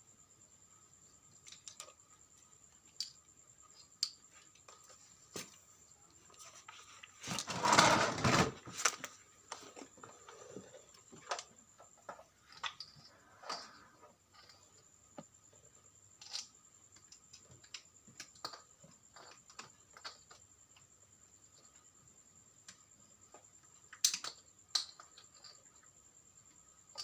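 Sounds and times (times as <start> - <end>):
scraping rustling noise: 6.3 - 10.7.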